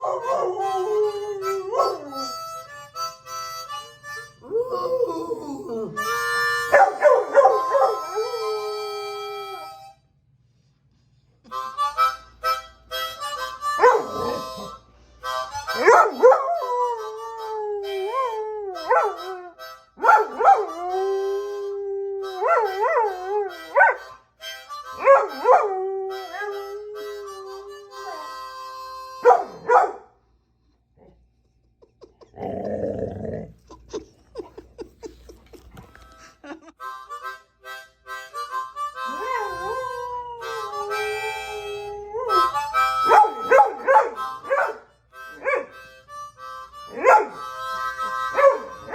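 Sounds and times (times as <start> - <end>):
dog howling: 0.0 - 2.6, 4.4 - 9.7, 15.8 - 24.0, 25.0 - 28.4, 39.0 - 44.8
harmonica phrases: 0.2 - 10.2, 11.4 - 29.9, 35.9 - 48.9.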